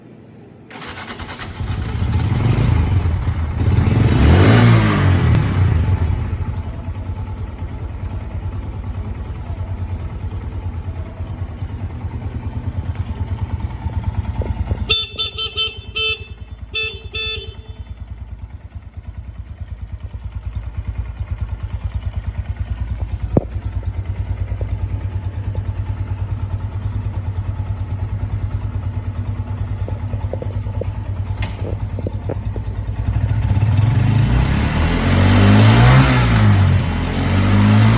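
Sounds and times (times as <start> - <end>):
motorcycle engine revving and idling: 0.7 - 37.9
horn beeping: 14.5 - 18.4.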